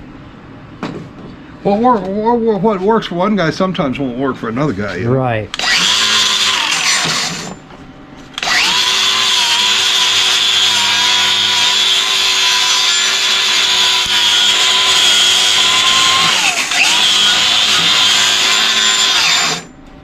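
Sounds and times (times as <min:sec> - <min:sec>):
angle grinder spinning: 0:05.5 - 0:07.6, 0:08.4 - 0:19.7.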